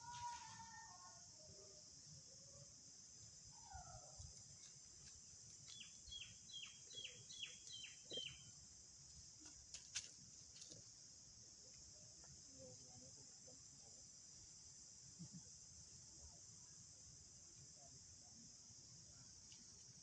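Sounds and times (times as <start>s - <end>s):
high insect drone: 0.0s - 20.0s
bird chirping: 5.7s - 8.5s.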